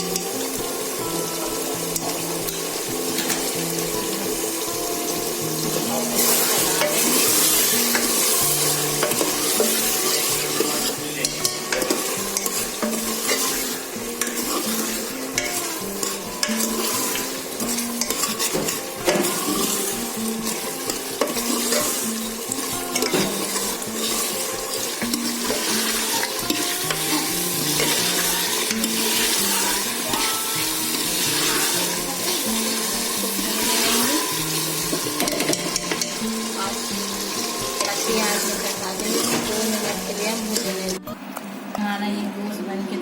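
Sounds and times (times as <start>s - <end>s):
curry sizzling in a pot: 0.0s - 41.0s
spoon scraping and knocking metal: 6.2s - 30.2s, 33.3s - 36.2s.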